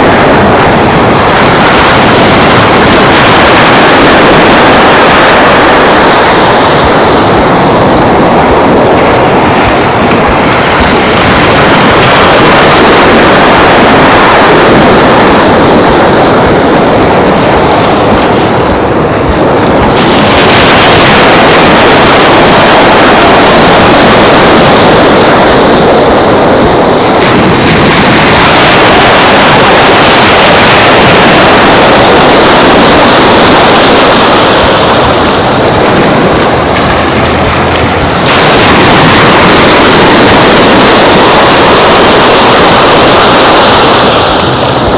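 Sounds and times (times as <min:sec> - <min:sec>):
ocean surf: 0:00.0 - 0:44.9
wind buffeting microphone: 0:00.0 - 0:44.9.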